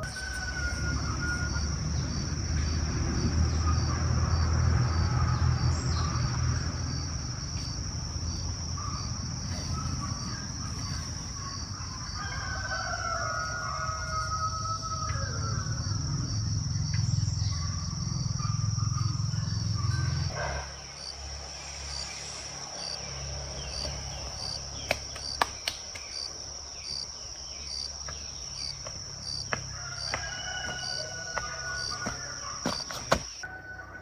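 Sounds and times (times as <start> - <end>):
insects chirping: 0.0 - 33.8
sharp clicks: 24.9 - 26.3.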